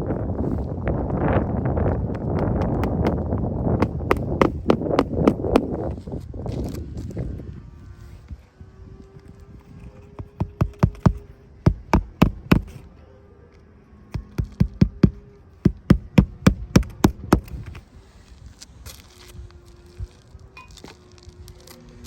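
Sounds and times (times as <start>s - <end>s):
sharp knocks: 10.4s - 12.7s.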